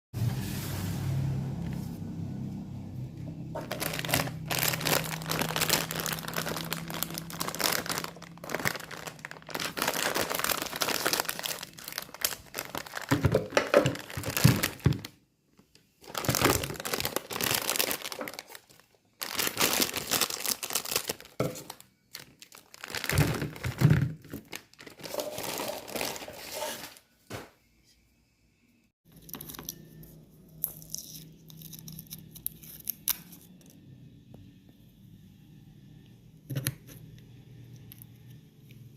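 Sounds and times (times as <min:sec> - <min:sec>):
plastic packaging crinkling and tearing: 0:03.6 - 0:15.1, 0:16.0 - 0:27.0.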